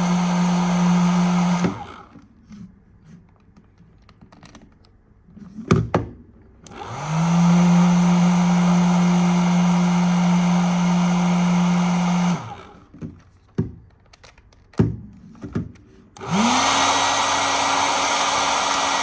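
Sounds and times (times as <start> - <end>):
hair dryer blowing: 0.0 - 2.1, 6.7 - 12.8, 16.2 - 19.0.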